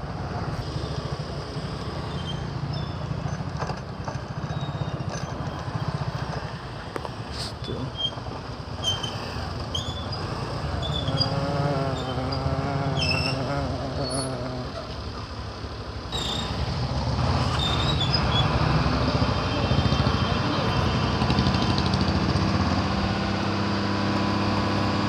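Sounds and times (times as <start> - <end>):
traffic: 0.0 - 25.0
short high squeaks: 2.0 - 3.5, 7.9 - 15.0, 16.1 - 16.6, 17.4 - 18.6
motorcycle engine running: 10.7 - 14.8.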